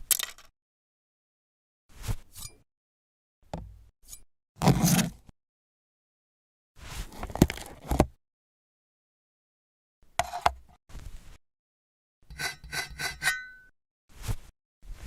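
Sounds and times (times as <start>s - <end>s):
rustling and scraping: 6.8s - 8.1s, 14.1s - 15.0s.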